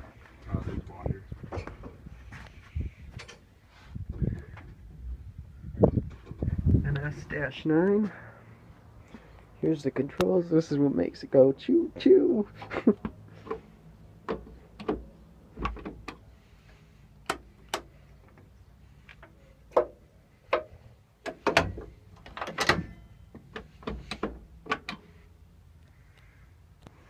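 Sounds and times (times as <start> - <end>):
clicks and knocks in locomotive cab: 14.2 - 16.3, 17.2 - 18.5, 19.1 - 25.1.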